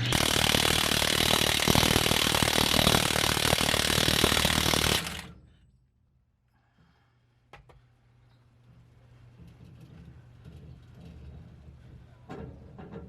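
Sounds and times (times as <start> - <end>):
impact wrench hammering: 0.0 - 5.3.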